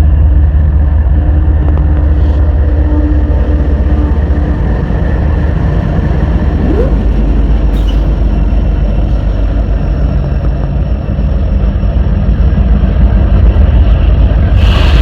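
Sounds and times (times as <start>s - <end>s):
freight train rumbling past: 0.0s - 15.0s
brief rising squeak: 6.5s - 10.1s.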